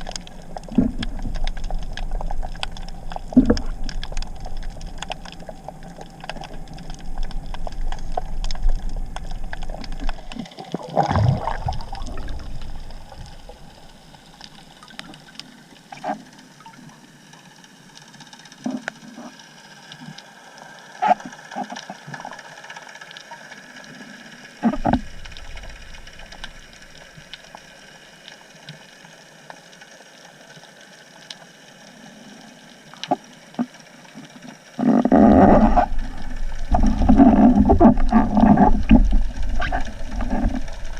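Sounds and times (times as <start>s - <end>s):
low water rushes: 0.0s - 14.7s
underwater crackle of clicks: 0.0s - 40.9s.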